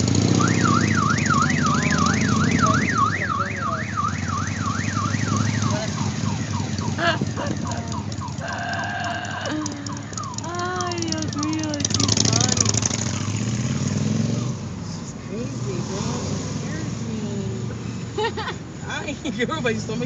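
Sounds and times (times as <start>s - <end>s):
vehicle engine running: 0.0s - 20.0s
electronic siren wailing: 0.2s - 13.5s.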